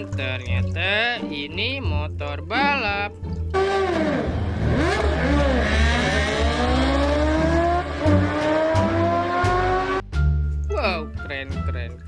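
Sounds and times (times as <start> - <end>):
racing motorcycle engine revving: 3.6 - 10.1.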